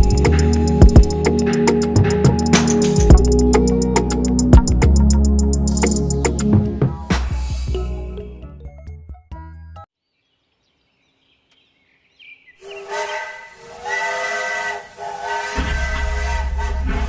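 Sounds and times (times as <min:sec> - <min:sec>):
background music: 0:00.0 - 0:09.9
hiss: 0:12.7 - 0:17.0.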